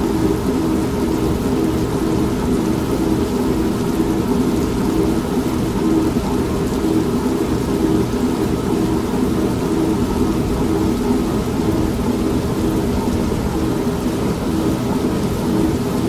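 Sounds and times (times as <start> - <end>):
rain: 0.0 - 16.0
washing machine running: 0.0 - 16.0
low rumble of thunder: 8.5 - 16.0.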